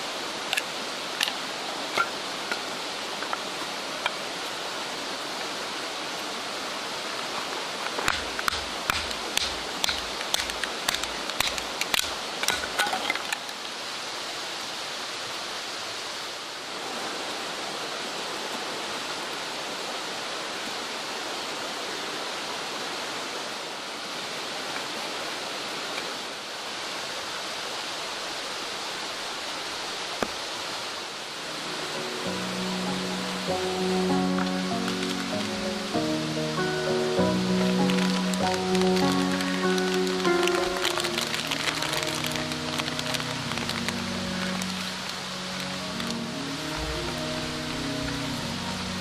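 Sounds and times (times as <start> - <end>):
stream flowing: 0.0 - 49.0
sharp knocks and clicks: 8.0 - 13.0.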